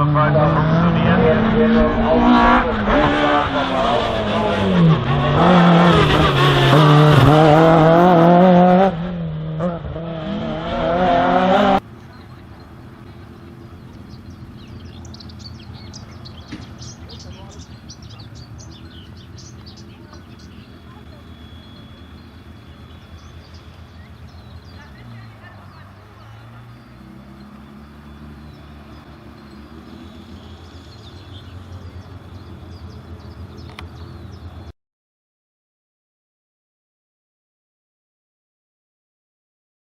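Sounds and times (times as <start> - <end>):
race car engine revving: 0.0 - 34.7
birds chirping: 10.4 - 34.7.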